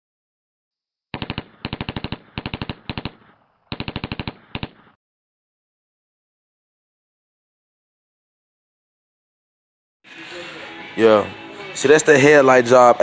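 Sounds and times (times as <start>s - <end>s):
rapid bursts of bangs: 1.1s - 5.0s.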